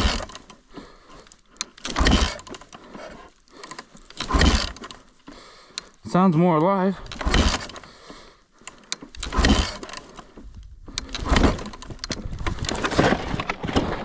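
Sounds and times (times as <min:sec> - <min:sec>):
dirt bike being kick-started: 0:00.0 - 0:14.0.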